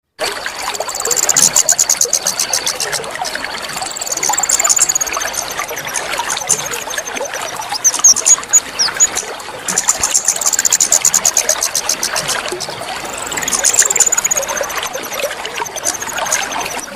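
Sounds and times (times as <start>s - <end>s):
trickling pouring water: 0.2s - 16.9s
small bird trilling: 3.8s - 9.2s, 9.8s - 12.3s, 13.0s - 16.6s.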